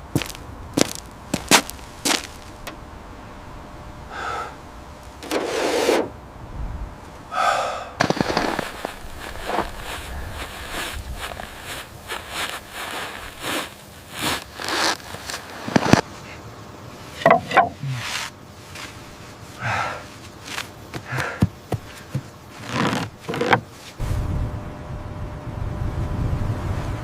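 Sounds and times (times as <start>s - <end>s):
short scrapes: 5.2s - 6.1s, 8.0s - 16.1s, 17.1s - 19.0s
irregular knocks: 17.2s - 17.9s.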